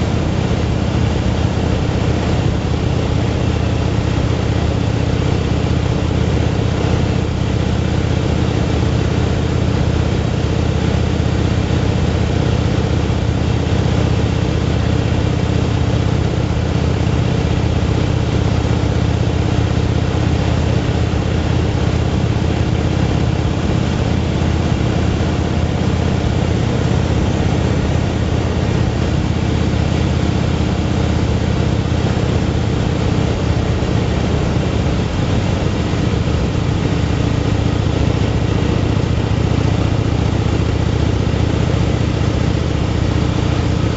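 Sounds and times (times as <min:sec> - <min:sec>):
motorcycle engine cruising: 0:00.0 - 0:43.9.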